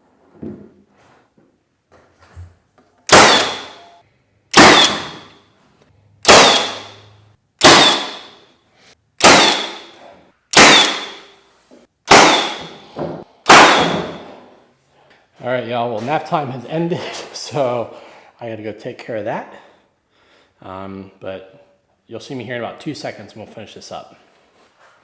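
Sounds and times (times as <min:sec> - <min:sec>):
nail gun firing: 0:03.1 - 0:03.9, 0:04.5 - 0:05.3, 0:06.2 - 0:07.0, 0:07.6 - 0:08.4, 0:09.2 - 0:11.3, 0:12.1 - 0:12.9, 0:13.5 - 0:14.3.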